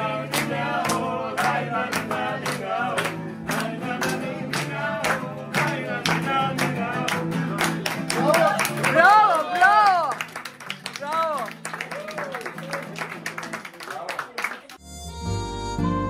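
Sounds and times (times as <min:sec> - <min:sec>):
man singing: 0:00.0 - 0:08.6
low instrumental accompaniment: 0:14.8 - 0:16.0.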